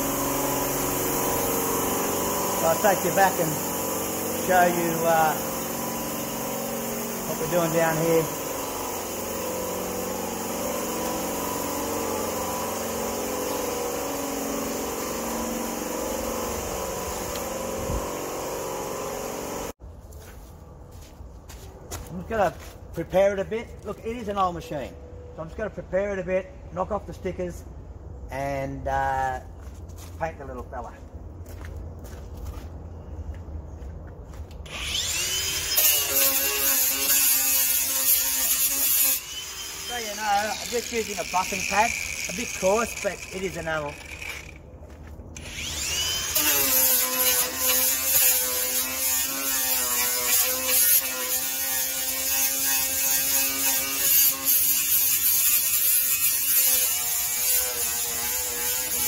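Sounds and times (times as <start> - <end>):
angle grinder motor whine: 0.0 - 19.7, 34.7 - 44.6, 45.4 - 54.1
buffing pad scrubbing painted steel: 0.0 - 19.7, 46.0 - 59.0.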